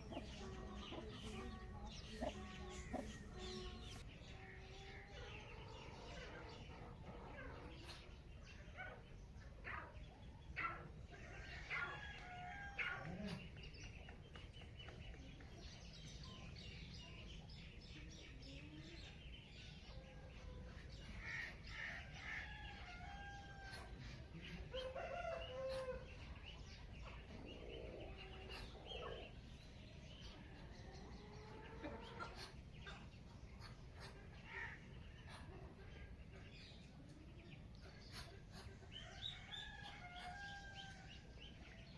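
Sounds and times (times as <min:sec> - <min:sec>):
chickens clucking: 0:00.0 - 0:04.0, 0:20.5 - 0:41.9
small birds chirping: 0:00.0 - 0:41.9.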